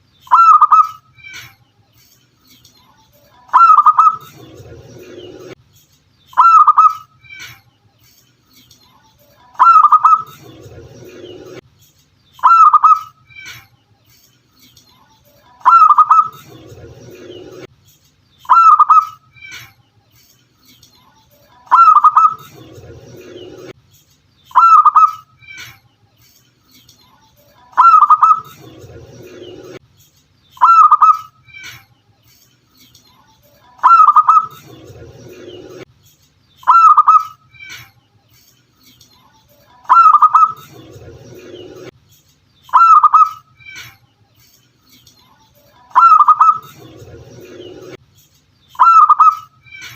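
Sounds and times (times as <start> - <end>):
dove cooing: 3.5 - 4.3, 15.6 - 16.4, 27.8 - 28.5, 48.8 - 49.5.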